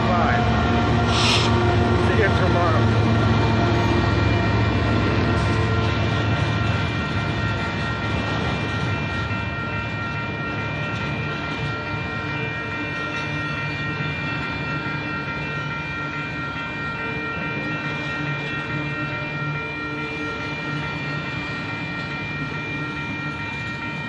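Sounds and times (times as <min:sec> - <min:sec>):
freight train wheels rumbling: 0:00.0 - 0:24.0
steady high ringing tone: 0:00.1 - 0:24.0.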